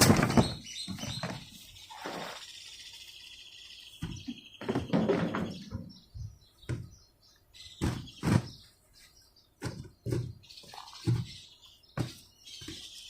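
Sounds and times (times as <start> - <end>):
knocks and thumps of parts: 0.0 - 1.5, 4.0 - 7.0, 7.8 - 8.6.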